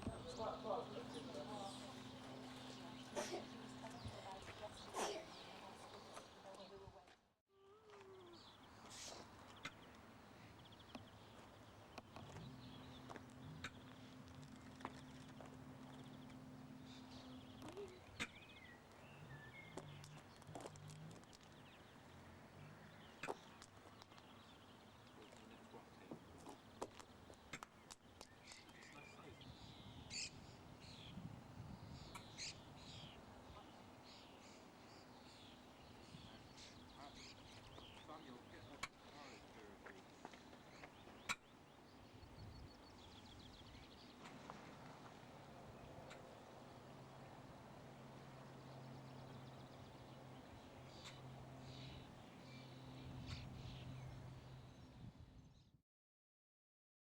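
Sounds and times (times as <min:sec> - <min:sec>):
faint birds chirping: 0:00.0 - 0:07.0, 0:07.6 - 0:55.8
low steady hum: 0:00.0 - 0:07.0.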